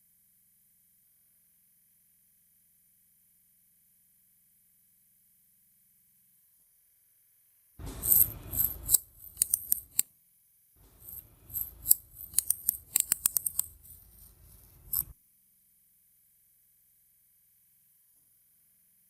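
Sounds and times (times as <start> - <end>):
metal parts clicking and clacking: 7.8 - 10.0, 10.8 - 15.1
metal scrape: 7.8 - 10.0, 10.8 - 15.2.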